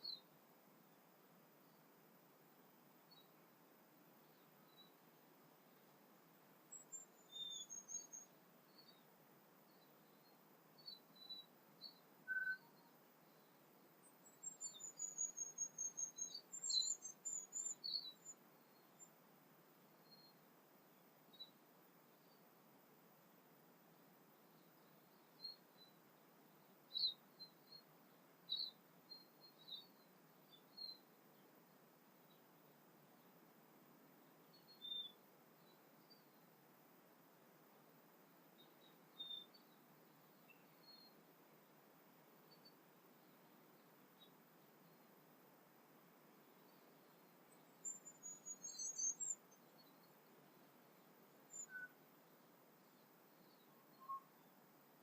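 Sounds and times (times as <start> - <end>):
faint background hiss: 0.0 - 55.0
songbird chirping: 0.0 - 55.0
bird song high thin notes: 11.4 - 12.9.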